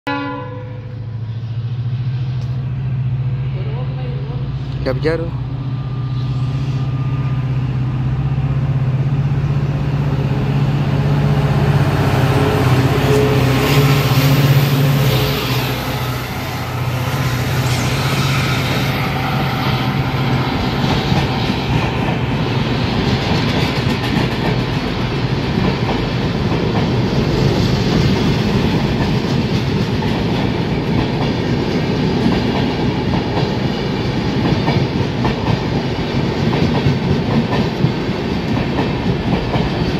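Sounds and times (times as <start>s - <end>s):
diesel locomotive engine hum: 0.1s - 39.9s
wheels clacking on rail: 11.2s - 39.9s.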